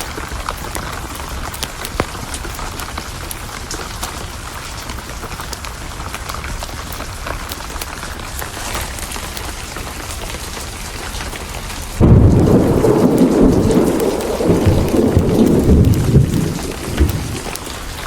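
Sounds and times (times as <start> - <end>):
heavy rain: 0.0 - 18.0
thunder clap rumbling: 12.0 - 18.0.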